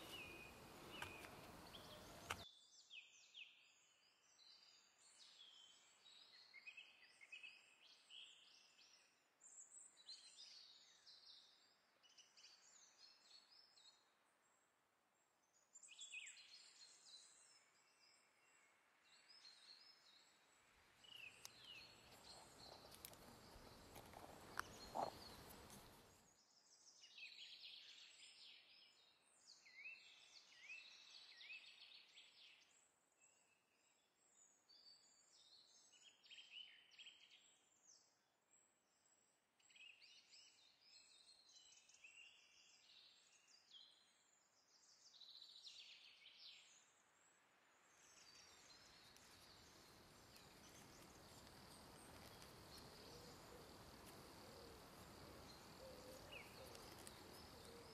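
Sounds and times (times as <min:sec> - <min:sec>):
soft steady hiss: 0:00.0 - 0:02.4, 0:46.5 - 0:57.9
small birds chirping: 0:00.0 - 0:14.0, 0:15.5 - 0:38.1, 0:39.6 - 0:57.9.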